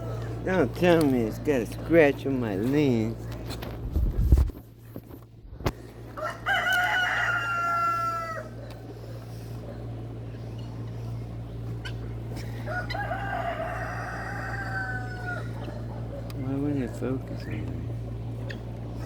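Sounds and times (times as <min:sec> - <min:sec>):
steady low hum: 0:00.0 - 0:19.0
rooster crowing: 0:06.2 - 0:08.7, 0:12.6 - 0:16.0.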